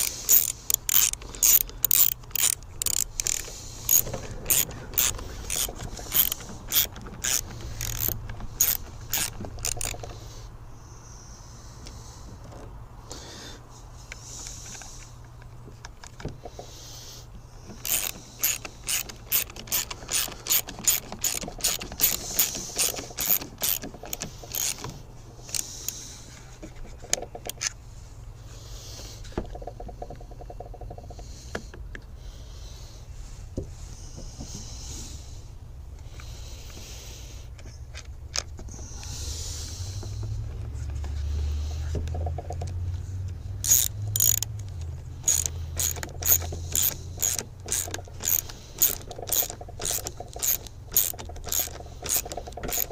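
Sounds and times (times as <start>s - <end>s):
tools and parts knocking: 0.0s - 10.1s, 17.7s - 25.6s, 45.2s - 52.9s
hand ratchet clicking: 0.0s - 10.2s, 17.7s - 26.0s, 43.6s - 52.9s.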